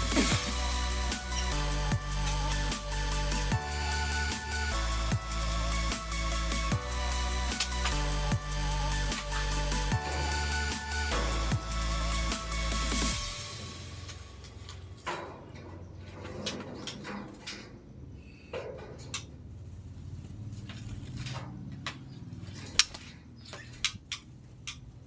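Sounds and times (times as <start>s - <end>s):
small birds chirping: 21.7s - 25.0s.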